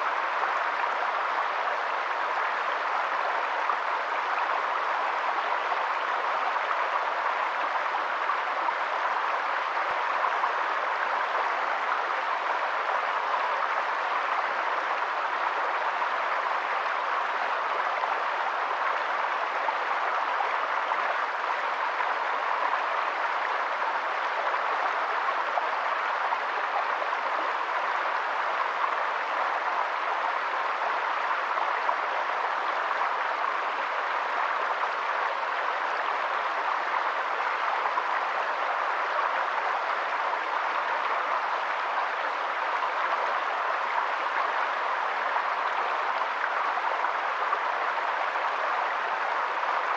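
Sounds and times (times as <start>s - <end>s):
water rushing: 0.0s - 49.9s.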